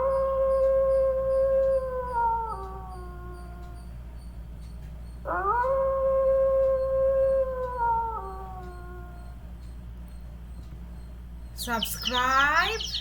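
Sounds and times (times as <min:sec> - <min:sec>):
dog howling: 0:00.0 - 0:03.8, 0:05.3 - 0:09.4.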